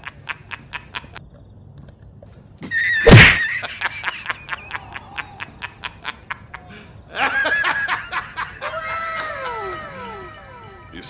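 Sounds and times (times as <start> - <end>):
rapid snickering laugh: 0.0 - 1.2, 3.3 - 11.0.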